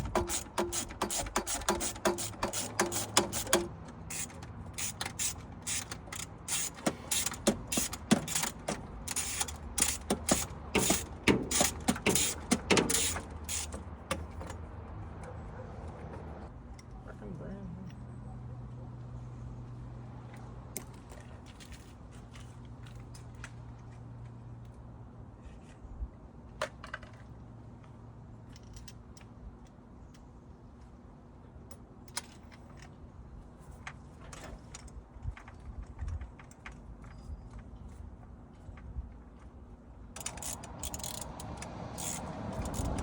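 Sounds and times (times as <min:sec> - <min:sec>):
hand tools clicking and clinking: 0:00.0 - 0:14.6, 0:40.2 - 0:43.0.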